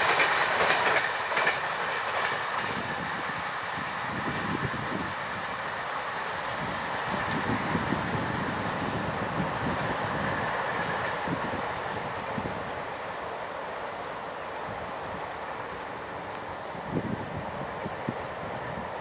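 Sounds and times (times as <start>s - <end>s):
train wheels clattering over joints: 0.0s - 3.1s.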